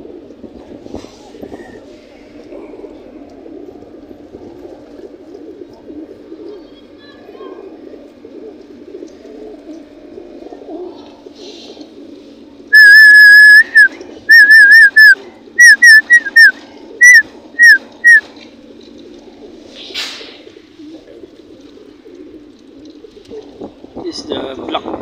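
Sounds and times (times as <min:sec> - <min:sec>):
pigeons cooing: 0:00.0 - 0:24.0
loud warbling whistle: 0:12.7 - 0:18.2
brief rustle: 0:18.8 - 0:20.4.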